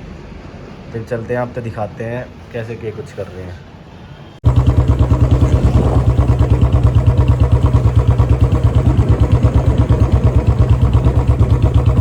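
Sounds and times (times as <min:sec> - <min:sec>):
motorcycle engine idling: 0:04.4 - 0:12.0.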